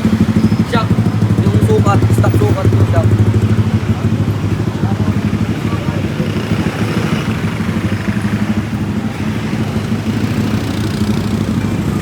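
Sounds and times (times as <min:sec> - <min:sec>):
small motorcycle engine idling: 0:00.0 - 0:12.0.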